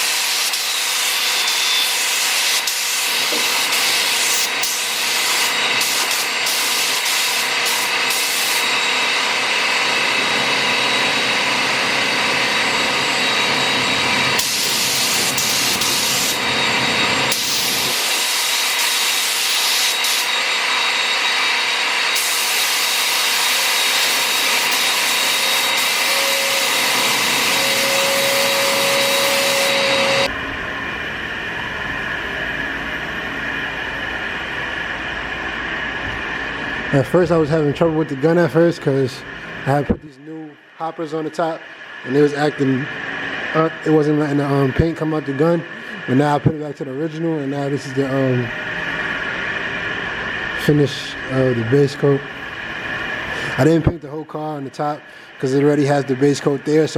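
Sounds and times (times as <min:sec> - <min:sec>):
paint spray gun hissing: 0:00.0 - 0:08.7, 0:14.4 - 0:16.5, 0:17.3 - 0:20.3, 0:22.1 - 0:27.7.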